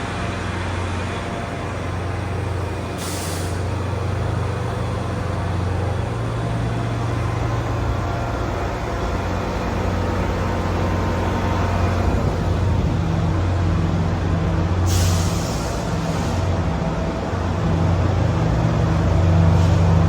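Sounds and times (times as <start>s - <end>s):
large vehicle engine idling: 0.0s - 20.0s
air hiss: 3.0s - 3.7s, 14.9s - 16.5s.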